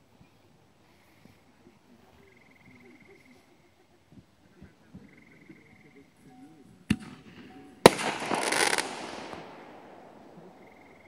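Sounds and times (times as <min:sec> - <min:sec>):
firework bangs: 0:06.9 - 0:11.0
firework crackling: 0:06.9 - 0:11.0.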